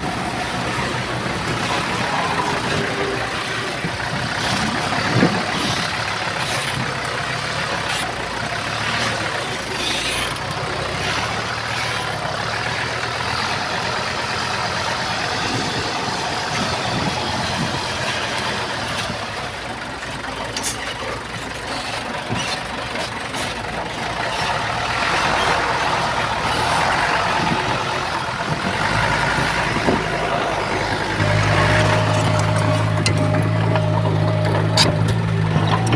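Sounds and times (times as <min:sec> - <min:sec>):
heavy machinery diesel engines: 0:00.0 - 0:35.9
metal clanks: 0:29.7 - 0:35.9.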